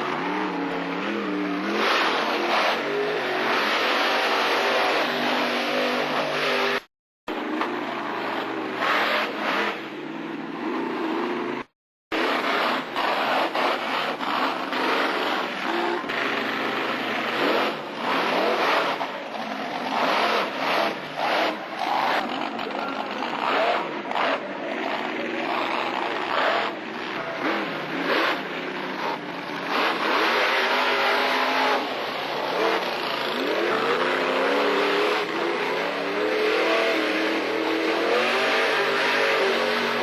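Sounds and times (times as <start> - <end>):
monster truck engine revving: 0.0 - 40.0.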